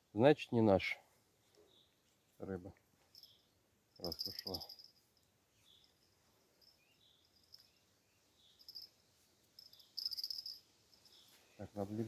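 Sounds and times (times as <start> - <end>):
crickets chirping: 3.1 - 11.4.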